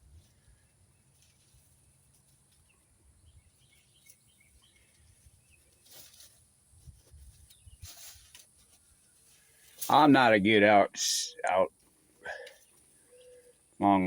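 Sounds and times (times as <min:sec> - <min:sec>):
faint outdoor ambience: 0:00.0 - 0:14.0
soft high bird chirps: 0:12.3 - 0:13.8.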